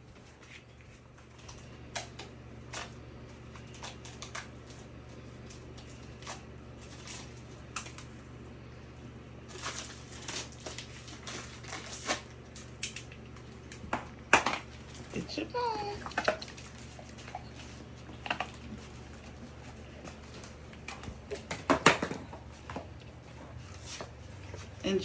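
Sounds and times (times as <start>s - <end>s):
steady low hum: 0.0s - 25.0s
packaging crackling as opened: 9.4s - 13.8s.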